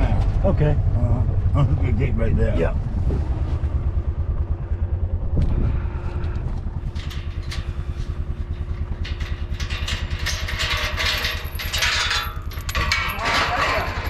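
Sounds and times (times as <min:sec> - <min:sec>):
vehicle engine running: 0:00.0 - 0:14.0
rattling and clattering: 0:05.4 - 0:14.0.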